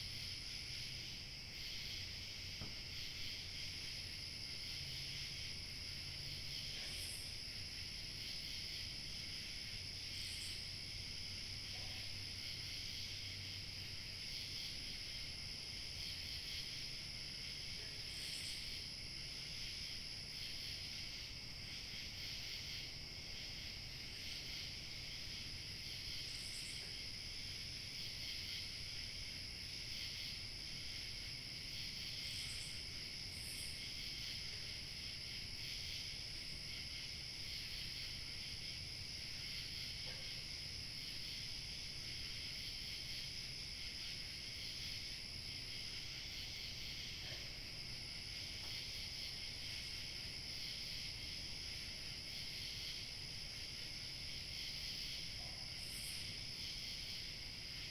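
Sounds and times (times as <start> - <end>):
crickets chirping: 0.0 - 57.9.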